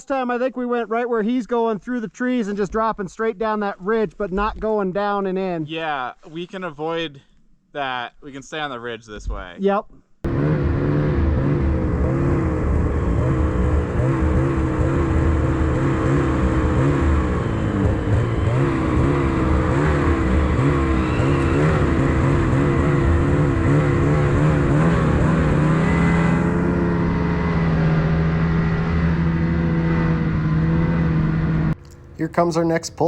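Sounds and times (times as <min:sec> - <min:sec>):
snowmobile engine running: 0:10.3 - 0:33.0.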